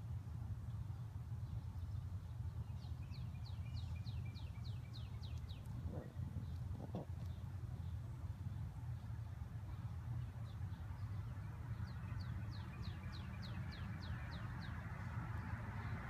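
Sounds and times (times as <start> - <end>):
steady low rumble: 0.0 - 9.7
songbird singing: 0.0 - 16.0.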